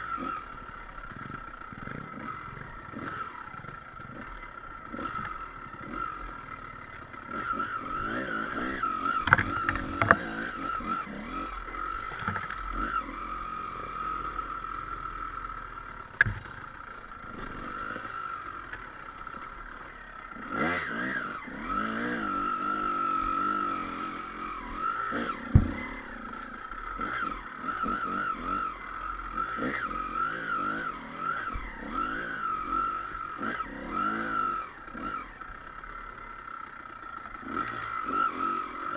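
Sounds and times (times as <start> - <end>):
dirt bike engine revving: 0.0 - 38.9
sharp knocks: 16.2 - 16.6, 25.5 - 26.0.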